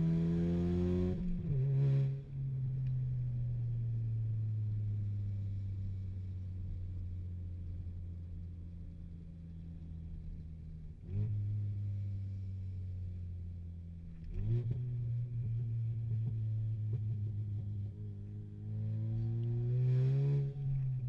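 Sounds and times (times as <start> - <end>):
car exhaust drone: 1.0 - 21.0
car engine accelerating: 10.2 - 21.0.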